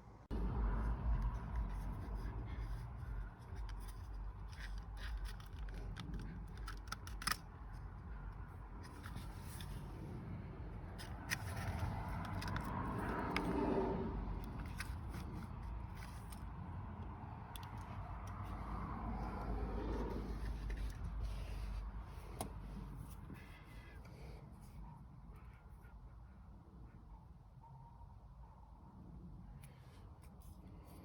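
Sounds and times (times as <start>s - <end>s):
steady low hum: 0.0s - 31.0s
hand tools clicking and scraping: 2.8s - 9.8s.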